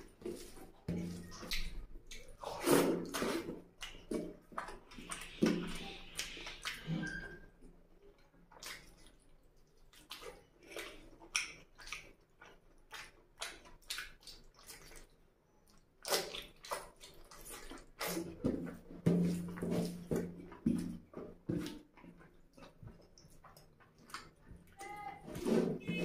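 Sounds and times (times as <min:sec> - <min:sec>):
wet chewing and lip-smacking: 0:00.0 - 0:25.2
hand squelching food: 0:00.0 - 0:26.0.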